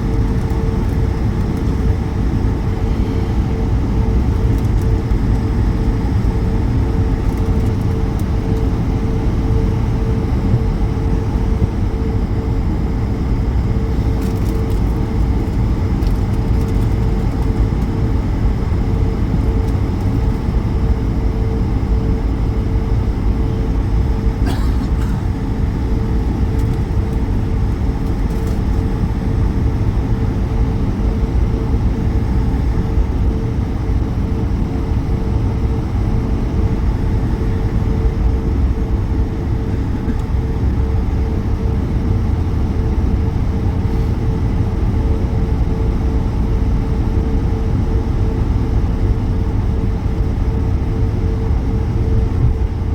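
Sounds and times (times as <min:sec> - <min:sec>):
aircraft cabin rumble: 0:00.0 - 0:52.9
steady hum tone: 0:00.0 - 0:52.9
faint clicks and rattles: 0:04.3 - 0:05.4, 0:14.2 - 0:17.9, 0:28.0 - 0:28.8.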